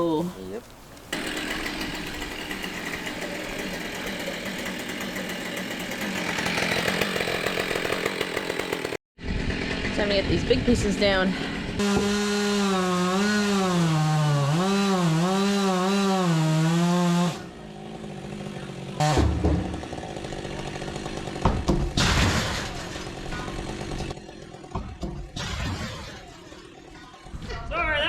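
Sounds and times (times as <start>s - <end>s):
chainsaw cutting wood: 1.1s - 27.4s
heavy thud of falling wood: 19.0s - 20.0s, 21.4s - 23.6s
wood knocks: 19.1s - 19.8s.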